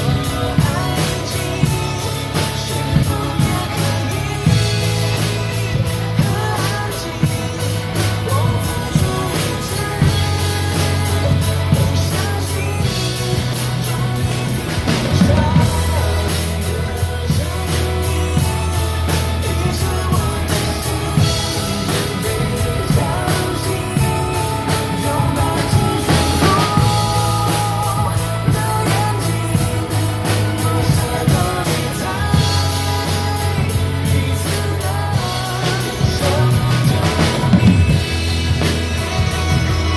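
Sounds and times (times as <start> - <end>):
drum kit playing: 0.0 - 39.9
pop song backing track: 0.0 - 39.9.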